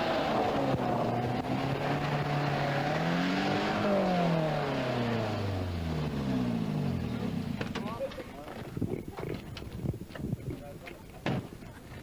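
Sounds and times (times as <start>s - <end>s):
rally car engine revving: 0.0s - 8.0s.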